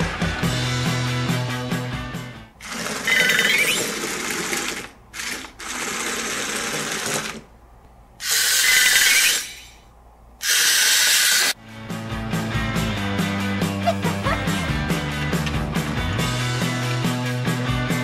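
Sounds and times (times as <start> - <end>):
toy gear motor whirring: 2.6 - 7.4, 8.2 - 9.8, 10.4 - 11.6.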